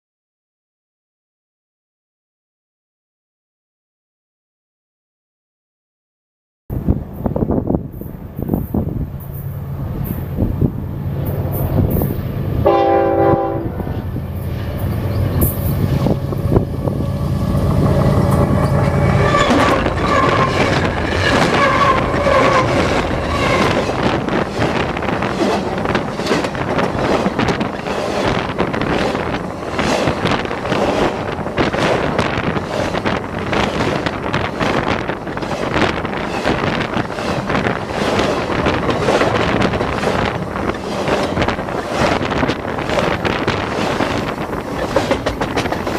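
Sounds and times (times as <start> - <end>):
diesel locomotive droning: 6.7 - 45.9
train horn: 11.5 - 14.1, 17.8 - 23.9
train wheels clattering on rail joints: 13.8 - 45.9.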